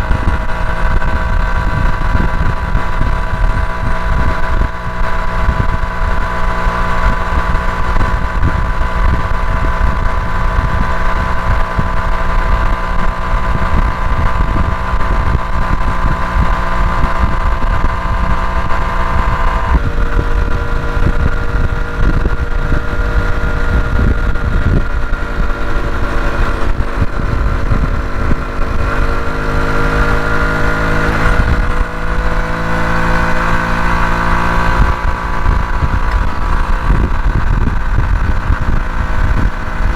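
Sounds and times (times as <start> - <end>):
motorcycle engine running: 0.0 - 39.9
wind rumbling on microphone: 0.0 - 39.9.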